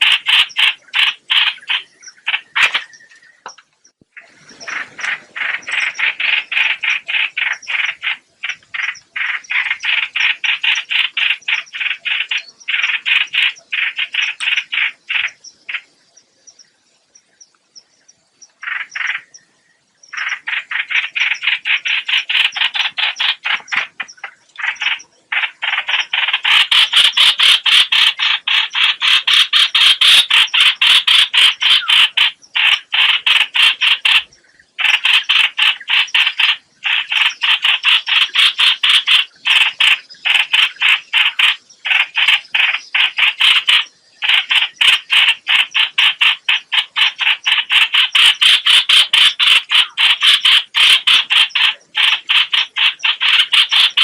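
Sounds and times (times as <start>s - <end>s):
bird rasping call: 4.2s - 15.9s, 20.1s - 54.0s.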